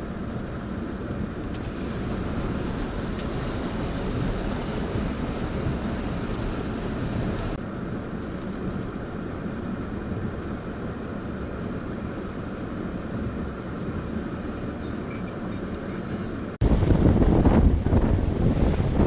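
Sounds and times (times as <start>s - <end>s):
wind buffeting microphone: 1.2s - 7.6s, 16.6s - 19.0s
waves washing: 1.6s - 7.6s, 16.6s - 19.0s.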